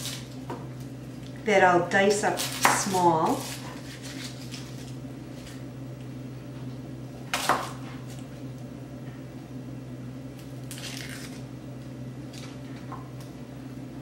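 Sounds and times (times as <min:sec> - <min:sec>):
scraping rustle on cutting board: 0:03.3 - 0:05.6.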